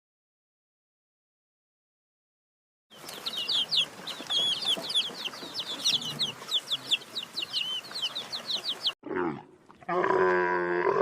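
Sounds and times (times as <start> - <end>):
small birds chirping: 2.9 - 9.0.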